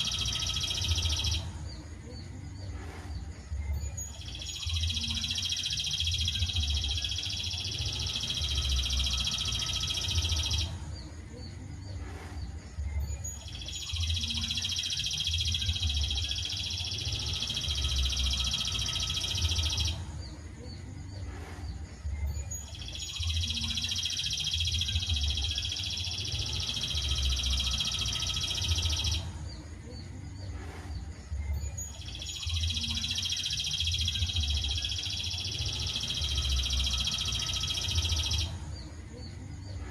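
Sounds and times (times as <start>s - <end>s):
songbird trilling: 0.0s - 1.4s, 3.9s - 10.7s, 13.1s - 20.0s, 22.4s - 29.2s, 31.7s - 38.5s.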